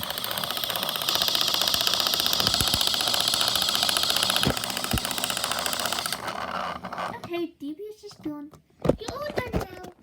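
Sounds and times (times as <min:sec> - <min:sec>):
small motor rattling: 0:00.0 - 0:07.5.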